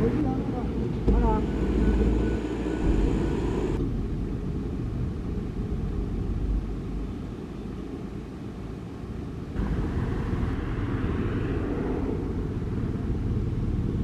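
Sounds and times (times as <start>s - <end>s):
faint high whine: 0.0s - 5.0s
diesel engine rumbling: 0.0s - 7.0s.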